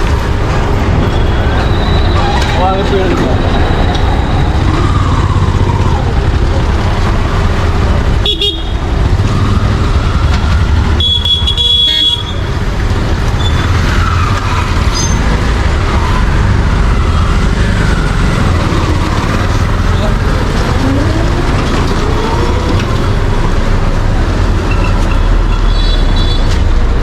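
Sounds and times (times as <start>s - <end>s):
street traffic rumbling: 0.0s - 27.0s
car horn blast: 11.0s - 12.4s.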